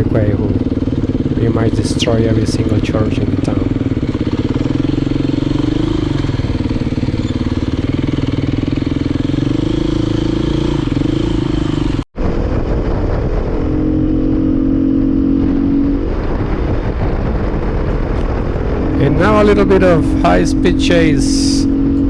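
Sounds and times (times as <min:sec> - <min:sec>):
dirt bike engine running: 0:00.0 - 0:22.0.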